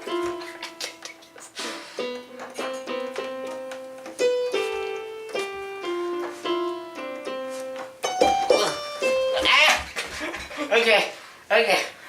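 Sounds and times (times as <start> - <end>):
slow keyboard melody: 0.0 - 9.4.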